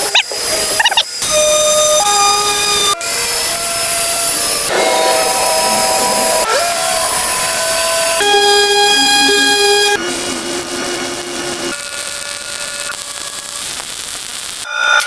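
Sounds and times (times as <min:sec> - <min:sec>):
power tools whining: 0:00.0 - 0:14.7
hiss: 0:00.0 - 0:15.0.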